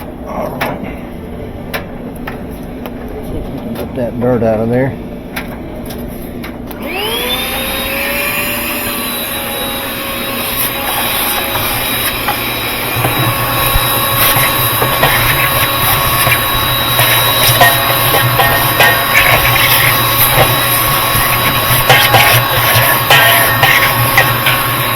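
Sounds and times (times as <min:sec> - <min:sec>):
vacuum motor whining: 0:06.6 - 0:24.9
debris rattling through hose: 0:10.4 - 0:24.9.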